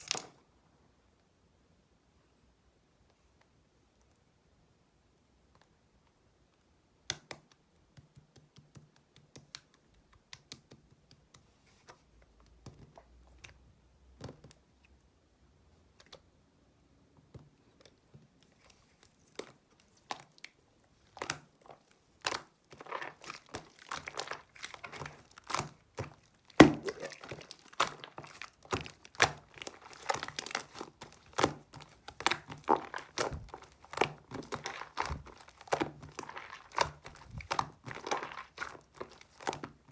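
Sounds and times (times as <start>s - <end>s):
crinkling handling noises: 0.0s - 0.4s, 17.8s - 39.9s.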